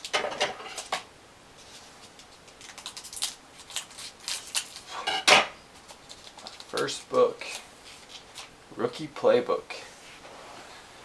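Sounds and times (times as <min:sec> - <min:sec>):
plastic packaging crinkling: 0:02.0 - 0:05.0, 0:05.8 - 0:08.6.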